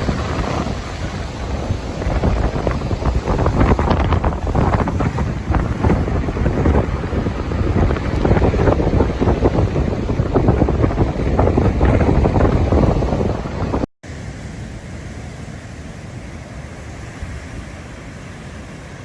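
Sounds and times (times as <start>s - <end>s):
wind gusts buffeting microphone: 0.0s - 13.9s
steady rush of wind: 0.0s - 19.0s.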